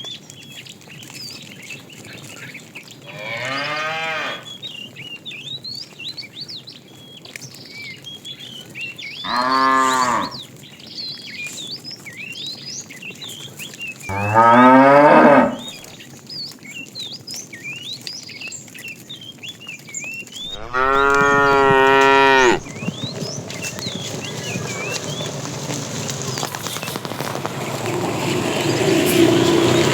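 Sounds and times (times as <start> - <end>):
cattle mooing: 3.1 - 4.5, 9.3 - 10.4, 14.1 - 15.9, 20.5 - 22.7.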